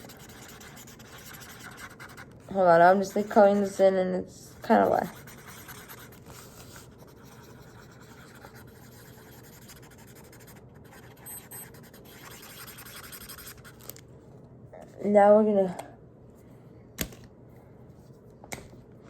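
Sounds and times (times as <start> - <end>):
marker scratching on paper: 0.0 - 4.0, 4.6 - 13.9.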